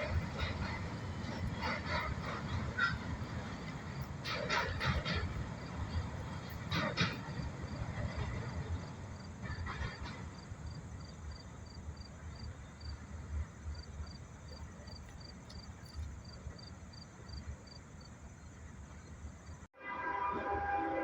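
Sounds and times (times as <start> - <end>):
insect chirping: 10.3 - 13.0, 13.7 - 19.7.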